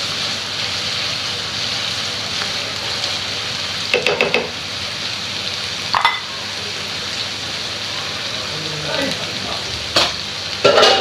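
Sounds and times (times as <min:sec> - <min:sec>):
vegetables and egg sizzling in oil: 0:00.0 - 0:11.0
metallic taps on pan: 0:03.9 - 0:04.5.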